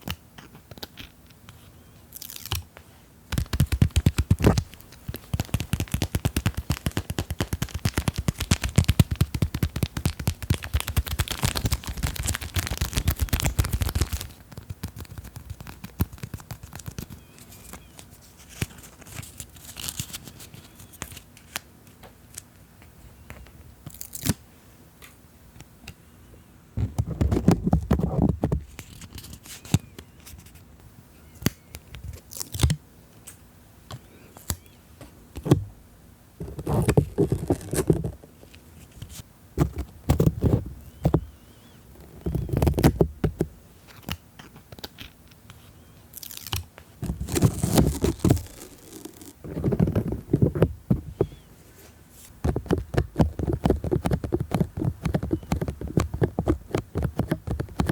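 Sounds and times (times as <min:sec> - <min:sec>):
crinkly sticker clicks and scratches: 0:00.0 - 0:01.2, 0:03.3 - 0:21.7, 0:36.4 - 0:38.2, 0:42.0 - 0:45.6, 0:46.2 - 0:51.4, 0:52.4 - 0:57.9
taps and crackles: 0:03.3 - 0:17.9, 0:52.4 - 0:57.9
rubbing on microphone: 0:36.4 - 0:38.2, 0:47.0 - 0:57.9.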